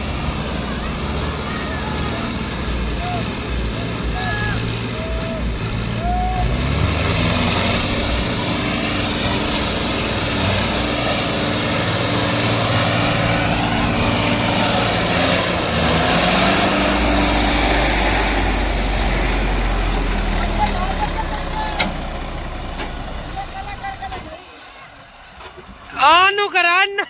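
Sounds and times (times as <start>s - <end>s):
diesel tractor engines under load: 0.0s - 27.0s.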